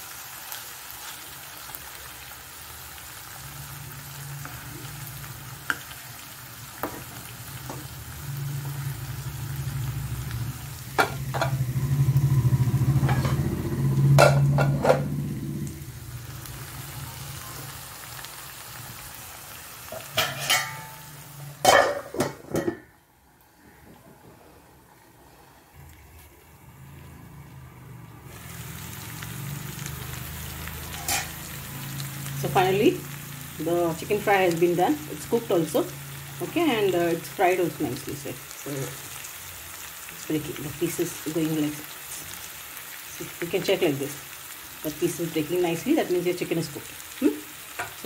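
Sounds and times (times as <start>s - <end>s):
chicken sizzling in oil: 0.0s - 22.4s, 26.3s - 48.0s
pans clattering: 14.2s - 15.2s, 19.9s - 22.9s.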